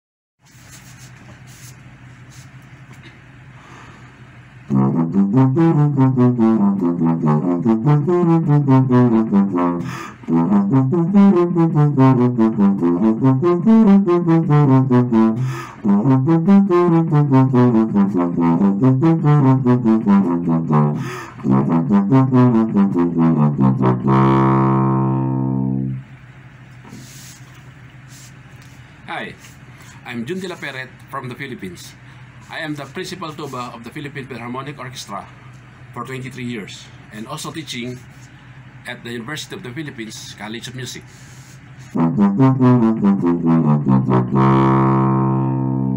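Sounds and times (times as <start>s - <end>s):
solo tuba playing: 4.7s - 26.2s, 41.8s - 45.9s.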